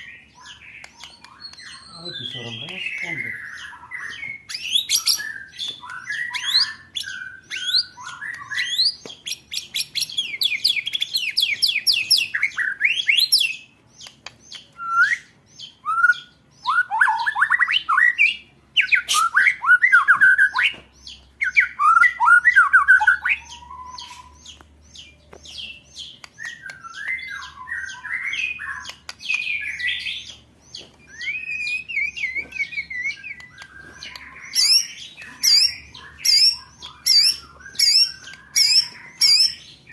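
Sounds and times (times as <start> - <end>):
bird harsh chattering: 31.2 - 39.8.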